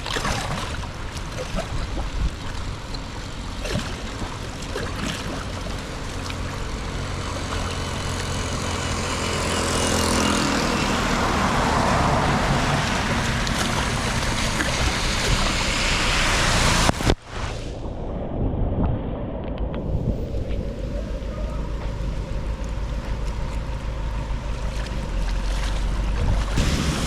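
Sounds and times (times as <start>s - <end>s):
water rushing into a drain: 0.0s - 17.8s, 23.4s - 27.0s.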